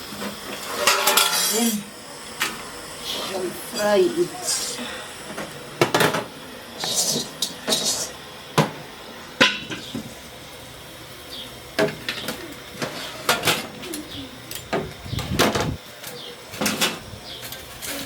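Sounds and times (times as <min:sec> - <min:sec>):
pots and utensils clattering: 0:00.0 - 0:04.2, 0:05.3 - 0:08.8, 0:09.4 - 0:10.2, 0:11.8 - 0:18.0
short hissing noises: 0:00.1 - 0:05.6, 0:06.3 - 0:08.6.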